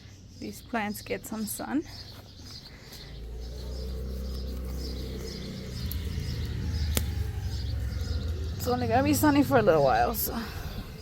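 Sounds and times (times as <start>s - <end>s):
small birds chirping: 0.0s - 11.0s
low rumble: 3.0s - 11.0s.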